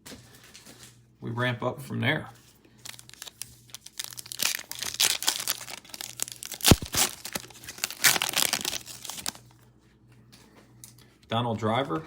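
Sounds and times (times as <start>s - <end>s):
wrapper crinkling and tearing: 2.8s - 9.5s.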